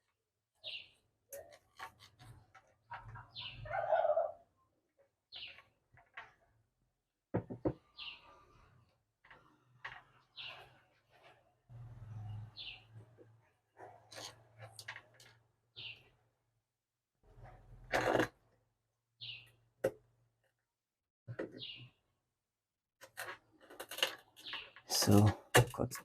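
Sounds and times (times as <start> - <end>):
bird chirping: 0.6 - 1.7, 2.8 - 4.3, 5.3 - 5.7, 7.8 - 8.4, 10.1 - 11.3, 12.2 - 13.0, 15.7 - 16.2, 19.2 - 19.6, 21.5 - 22.0.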